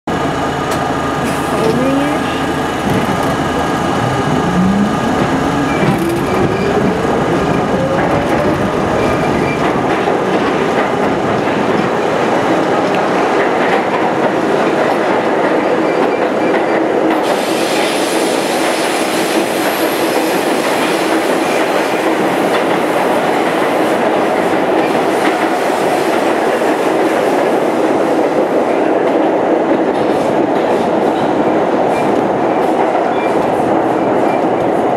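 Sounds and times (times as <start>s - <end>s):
subway train motor whine: 0.1s - 13.4s
wheels rumbling on rail: 0.1s - 34.9s
wheels squealing: 1.7s - 9.9s.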